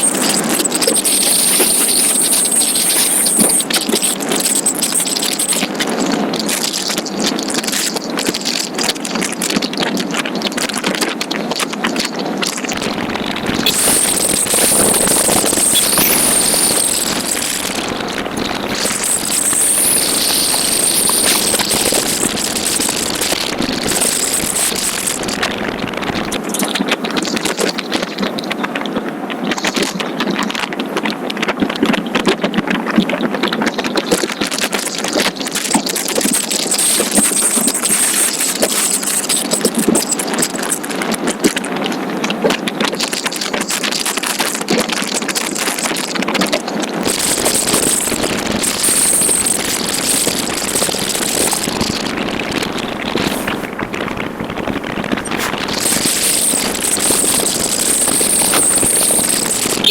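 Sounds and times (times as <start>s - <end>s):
microphone jolts: 12.7s - 26.6s, 47.0s - 59.9s
motorcycle engine running: 12.8s - 26.4s, 47.1s - 59.9s.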